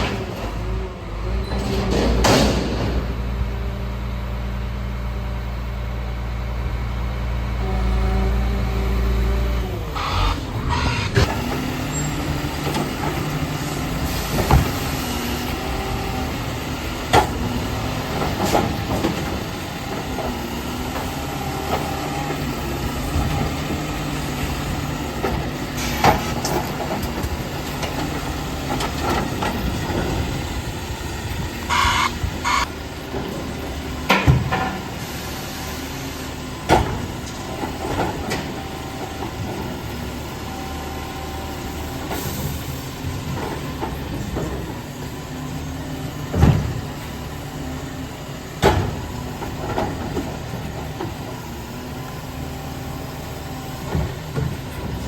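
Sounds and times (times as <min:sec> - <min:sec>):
garbage truck engine running: 0:00.0 - 0:55.0
sharp knocks and clanks: 0:01.5 - 0:03.2, 0:34.0 - 0:34.9.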